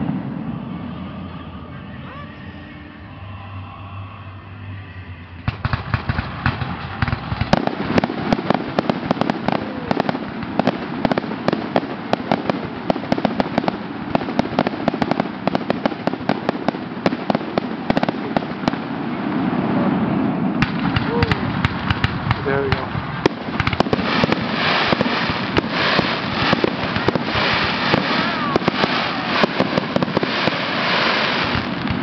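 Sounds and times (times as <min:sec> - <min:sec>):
fireworks bursting and crackling: 0:00.0 - 0:02.4, 0:05.3 - 0:32.0.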